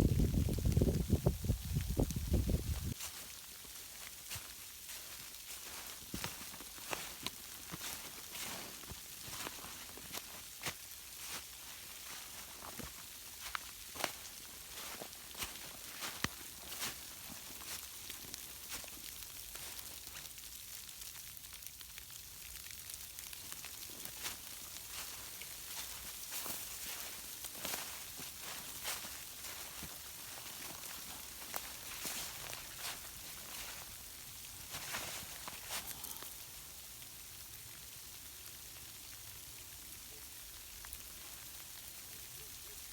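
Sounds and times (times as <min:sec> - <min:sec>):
freezing rain hissing: 0:00.0 - 0:42.9.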